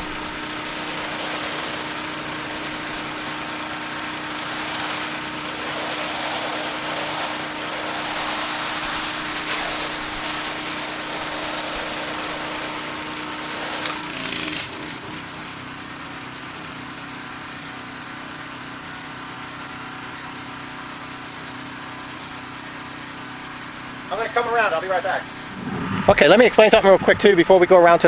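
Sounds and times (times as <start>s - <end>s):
pressure washer water spray hiss: 0.0s - 18.8s
pressure washer engine running: 0.0s - 28.0s.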